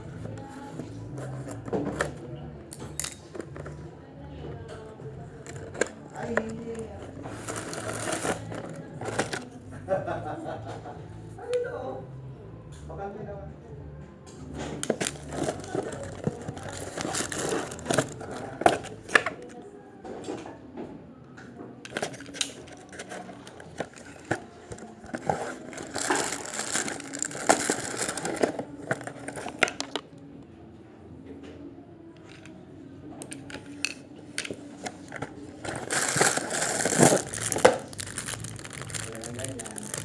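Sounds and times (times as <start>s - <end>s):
plastic packaging clicks and crinkling: 5.4s - 9.6s, 14.8s - 19.6s, 21.8s - 30.0s, 33.2s - 40.0s.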